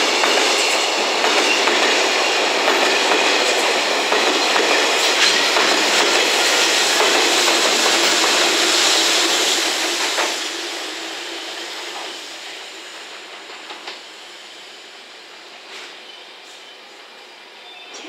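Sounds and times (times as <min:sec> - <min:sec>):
electric locomotive passing: 0:00.0 - 0:18.0
freight train wheels on rails: 0:00.0 - 0:18.0.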